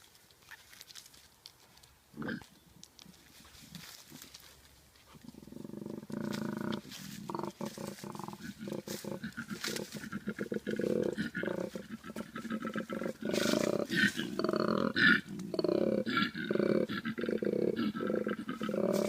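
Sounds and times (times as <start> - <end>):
big cat roaring and grunting: 5.4 - 19.0.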